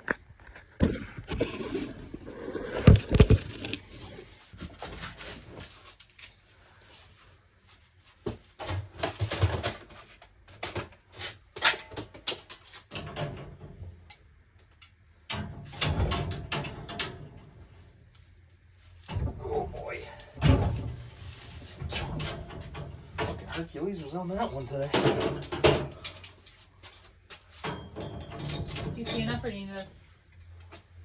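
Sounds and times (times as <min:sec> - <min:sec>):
objects knocking and clattering: 0:02.7 - 0:03.8, 0:08.3 - 0:13.8, 0:24.4 - 0:29.6.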